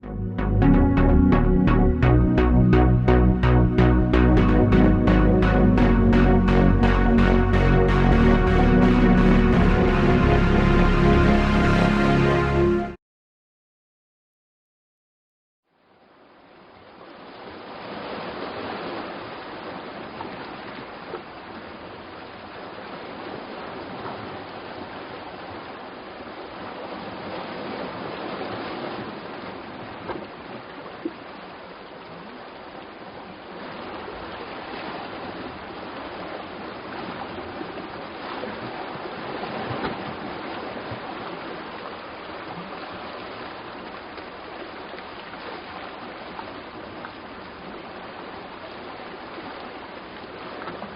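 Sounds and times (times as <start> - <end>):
sea waves washing on shore: 17.0 - 50.9.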